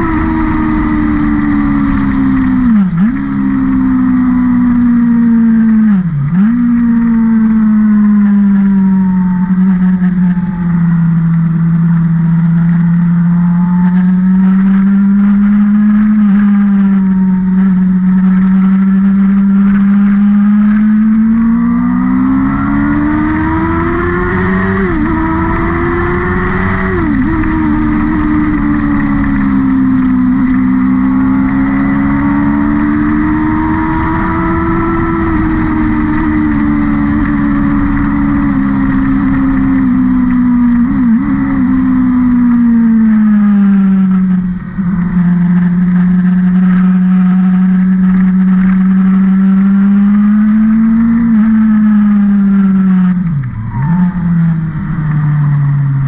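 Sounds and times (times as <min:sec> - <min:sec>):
race car engine: 0:00.0 - 0:56.0.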